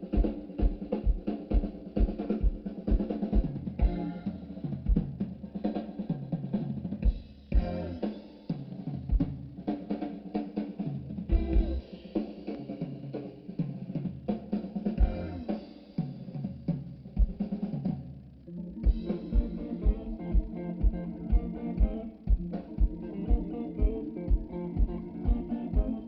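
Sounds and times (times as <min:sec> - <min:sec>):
bass line: 0:03.5 - 0:05.1, 0:07.5 - 0:08.1, 0:11.3 - 0:11.8, 0:15.0 - 0:15.5, 0:18.0 - 0:26.0.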